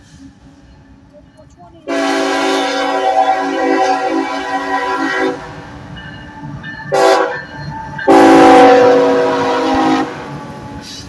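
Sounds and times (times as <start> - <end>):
low rumble of train: 0.0 - 11.0
locomotive air horn blasts: 1.9 - 5.6, 6.9 - 7.4, 8.0 - 11.0.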